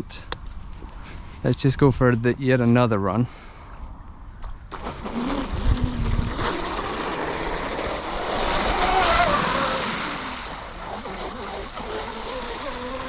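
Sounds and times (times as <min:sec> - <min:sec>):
rc boat motor whining: 0:04.8 - 0:13.0
low rumbles on microphone: 0:05.1 - 0:08.1.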